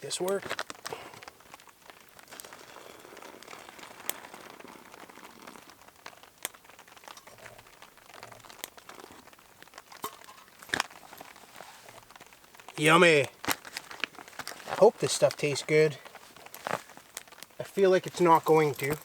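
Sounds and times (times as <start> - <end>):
foil pouch crinkling: 0.0 - 19.0
sharp clicks and crackles: 0.0 - 19.0.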